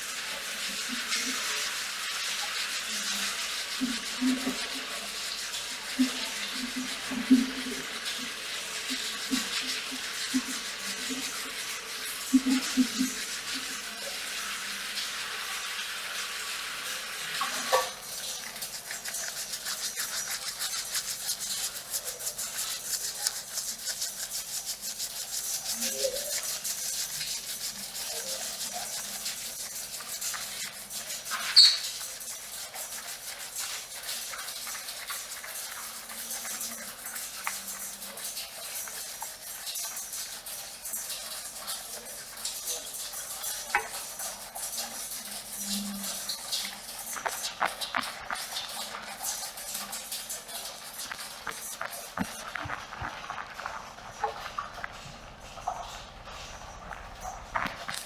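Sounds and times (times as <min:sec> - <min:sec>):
fingers scrubbing lathered scalp: 0:00.0 - 0:16.4, 0:17.3 - 0:58.0
rain on a metal roof: 0:00.0 - 0:58.0
sharp squeak: 0:31.6 - 0:31.9.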